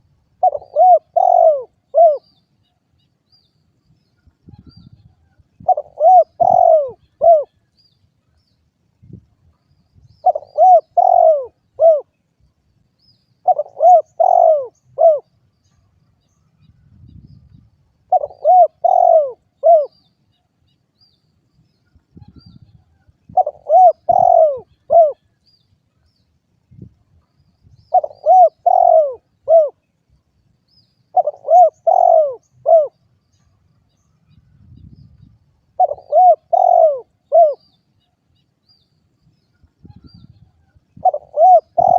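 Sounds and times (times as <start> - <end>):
dove cooing: 0.0 - 2.3, 5.6 - 7.6, 10.2 - 12.2, 13.4 - 15.3, 18.1 - 20.0, 23.3 - 25.3, 27.9 - 29.8, 31.1 - 33.0, 35.8 - 37.7, 41.0 - 41.9.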